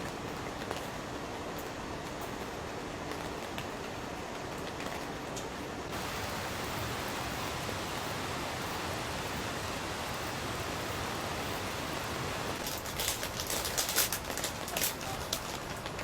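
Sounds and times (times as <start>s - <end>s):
wind: 0.0s - 16.0s
heavy rain: 5.9s - 16.0s.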